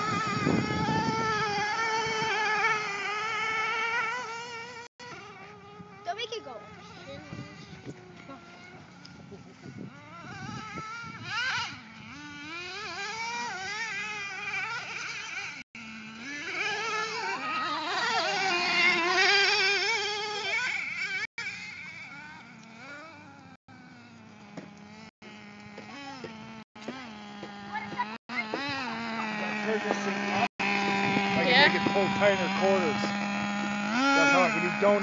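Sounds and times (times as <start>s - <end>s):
toy truck motor whining: 0.0s - 35.0s.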